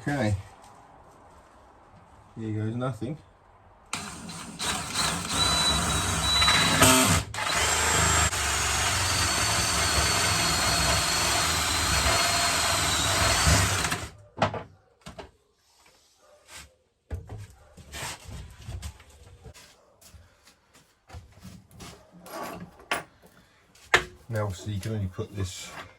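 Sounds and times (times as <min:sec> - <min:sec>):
power drill boring: 0:03.9 - 0:14.2.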